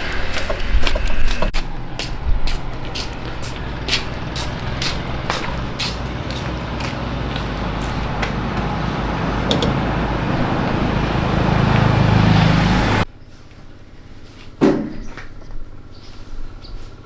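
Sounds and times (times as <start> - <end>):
engine-like rumble: 0.0 - 13.1.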